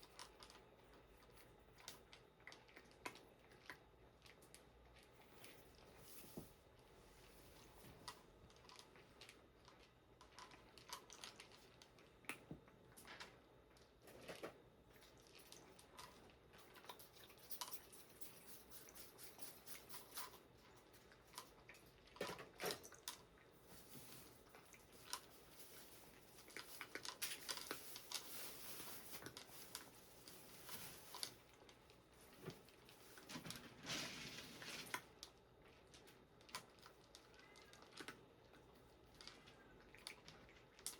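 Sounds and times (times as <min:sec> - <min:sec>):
cat litter being scooped: 0:22.2 - 0:35.2.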